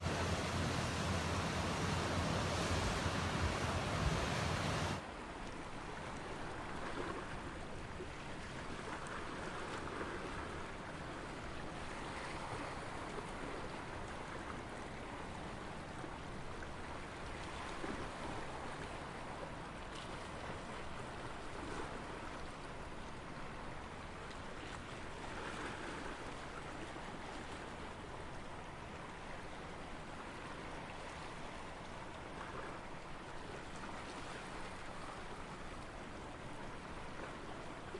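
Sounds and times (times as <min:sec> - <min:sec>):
wind rumble on microphone: 0:00.0 - 0:05.0
sea waves washing on shore: 0:00.0 - 0:05.2.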